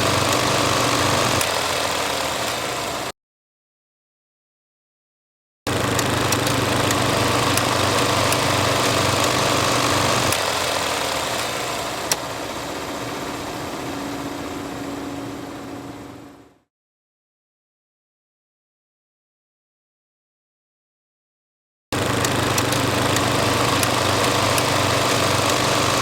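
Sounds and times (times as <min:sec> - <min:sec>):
film projector whirring: 0:00.0 - 0:03.1, 0:05.7 - 0:16.6, 0:22.0 - 0:26.0
sharp clicks: 0:00.2 - 0:01.8, 0:05.8 - 0:12.3, 0:22.0 - 0:26.0
low hum: 0:12.3 - 0:16.7.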